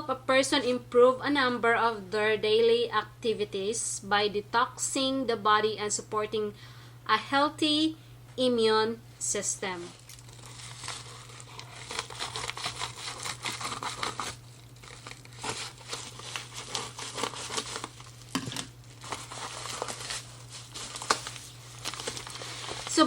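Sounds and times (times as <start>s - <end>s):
steady low hum: 0.0s - 23.0s
packaging crinkling: 9.8s - 23.0s.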